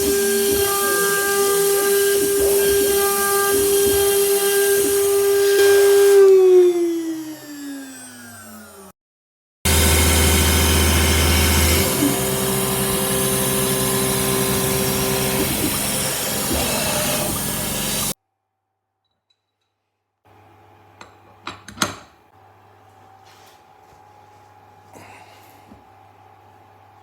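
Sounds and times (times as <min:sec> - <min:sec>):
router spindle milling with whine: 0:00.0 - 0:08.9, 0:09.7 - 0:18.2.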